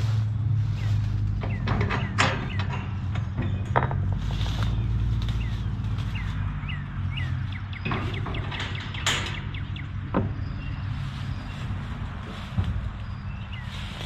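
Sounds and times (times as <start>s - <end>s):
small bird chirping: 4.5s - 11.9s.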